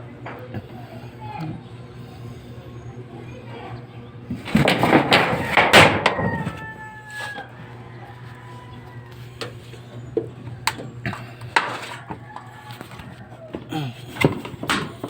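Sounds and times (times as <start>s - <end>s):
steady low hum: 0.0s - 15.0s
sharp knocks and clatters: 4.3s - 6.6s.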